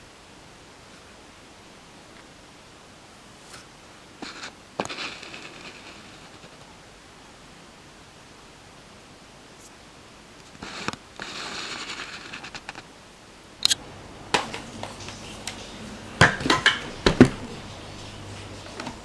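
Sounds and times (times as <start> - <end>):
rustling: 3.3 - 6.8, 10.4 - 12.9.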